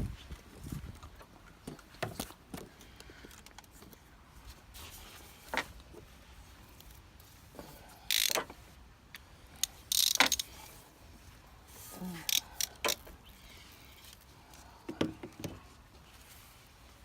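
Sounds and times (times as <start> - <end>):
ratchet clicking: 8.1 - 8.5, 9.6 - 10.5, 12.3 - 13.0.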